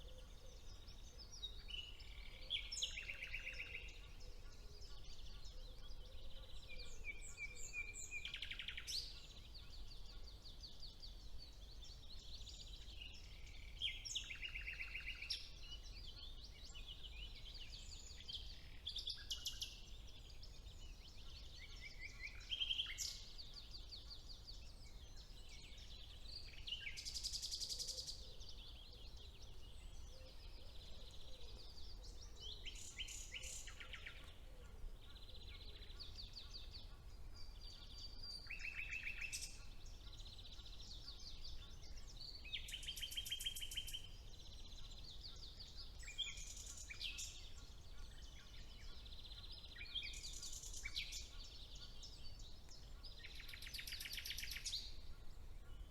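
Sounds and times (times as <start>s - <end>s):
songbirds singing: 0.0s - 55.9s.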